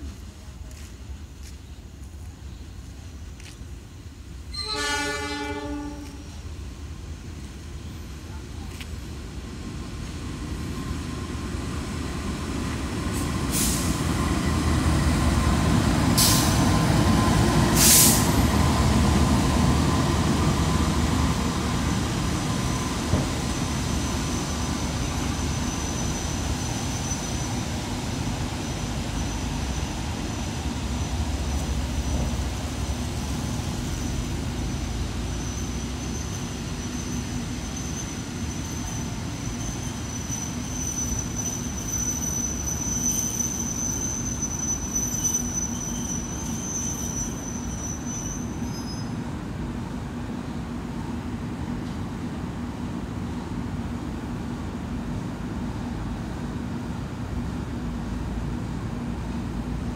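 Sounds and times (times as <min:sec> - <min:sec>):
diesel locomotive engine: 0:00.0 - 0:59.9
train coaches rolling rumble: 0:00.0 - 0:59.9
high steady squeal: 0:35.2 - 0:49.2.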